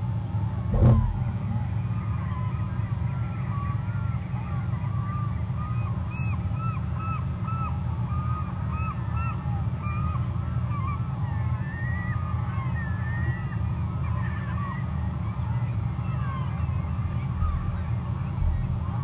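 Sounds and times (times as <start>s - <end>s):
steady low rumble: 0.5s - 2.8s, 16.7s - 19.0s
birds calling: 0.8s - 19.0s.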